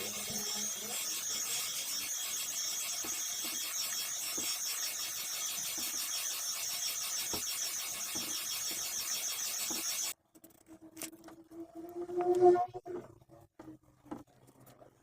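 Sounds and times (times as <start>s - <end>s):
small motorized tool whirring: 0.0s - 10.2s.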